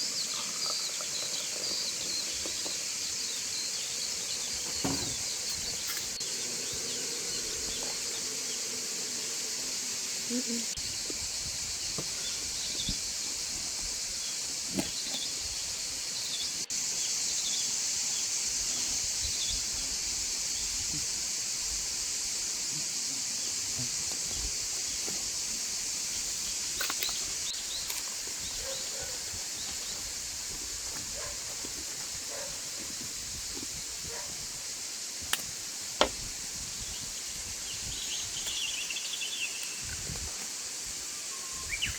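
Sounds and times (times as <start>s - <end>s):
insect chorus hiss: 0.0s - 41.9s
faint bird chirps: 41.2s - 41.9s.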